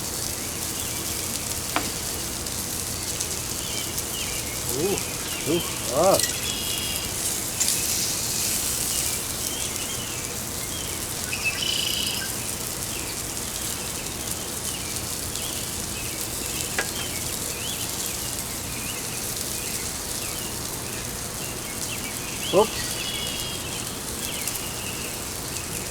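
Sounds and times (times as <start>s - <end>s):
food sizzling on grill: 0.0s - 25.9s
birds chirping: 0.6s - 10.2s, 20.2s - 24.8s.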